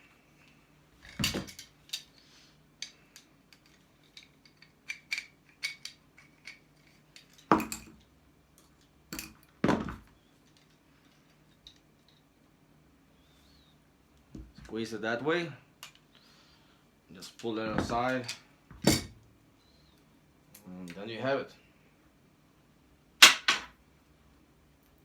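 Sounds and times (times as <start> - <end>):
metal parts clinking and scraping: 1.0 - 8.0.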